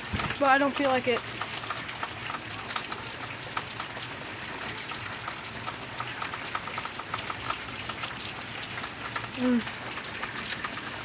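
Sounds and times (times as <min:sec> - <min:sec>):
drops splashing into puddles: 0:00.0 - 0:11.0
heavy rain: 0:00.0 - 0:11.0.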